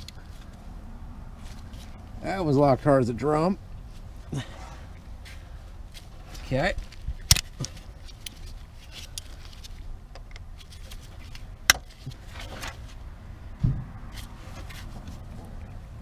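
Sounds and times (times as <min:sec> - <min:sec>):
short thump: 0:13.6 - 0:14.0.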